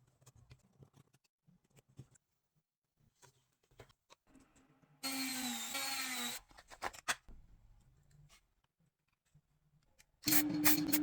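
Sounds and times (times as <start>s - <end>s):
small power tool whirring: 5.0s - 6.4s.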